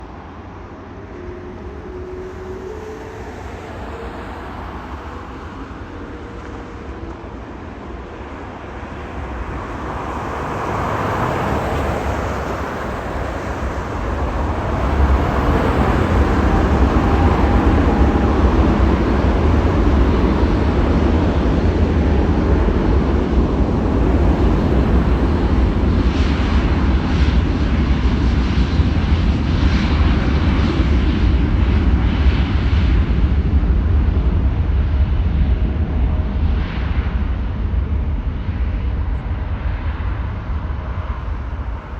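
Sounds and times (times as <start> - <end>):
jet engines at takeoff: 0.0 - 41.9.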